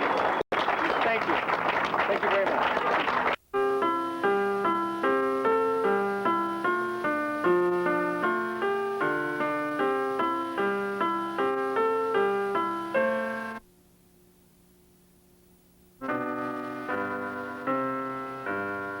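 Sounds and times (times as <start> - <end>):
faint hum: 0.0 - 19.0
piano notes: 3.6 - 13.6, 16.0 - 19.0.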